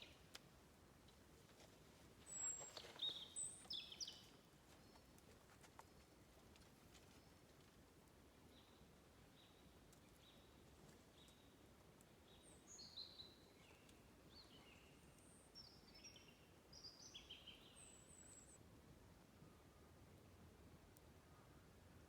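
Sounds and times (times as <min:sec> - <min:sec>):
faint birdsong chirps: 0:00.0 - 0:00.4, 0:02.2 - 0:06.3, 0:08.4 - 0:18.6.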